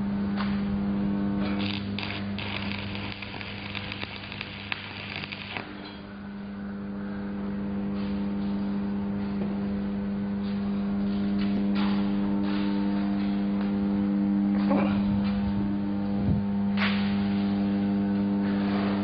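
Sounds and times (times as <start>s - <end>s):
low hum: 0.0s - 19.0s
welding arc crackling and popping: 1.4s - 5.9s.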